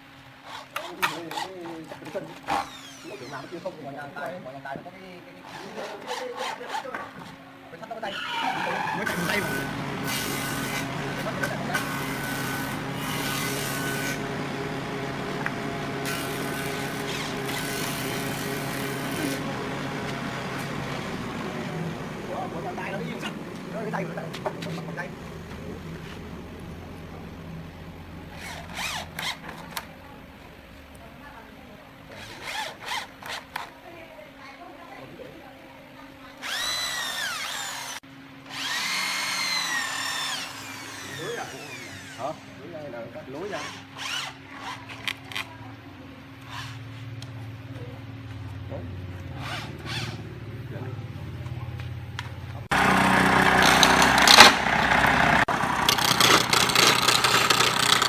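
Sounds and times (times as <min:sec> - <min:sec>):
rasping strokes: 0:00.4 - 0:03.8, 0:28.3 - 0:29.5
power tool motor humming: 0:02.4 - 0:03.8, 0:09.0 - 0:22.2, 0:28.3 - 0:29.8, 0:32.1 - 0:33.7, 0:36.4 - 0:42.7, 0:43.3 - 0:45.4, 0:49.3 - 0:50.2, 0:52.7 - 0:54.6, 0:55.7 - 0:58.0
loud harsh machine noise: 0:08.3 - 0:26.4, 0:36.4 - 0:44.8, 0:52.7 - 0:58.0.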